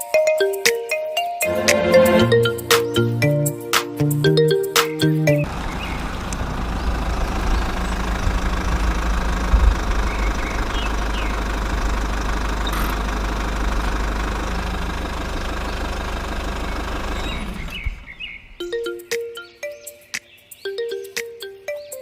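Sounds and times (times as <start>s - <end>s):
small diesel engine knocking: 5.5s - 18.2s.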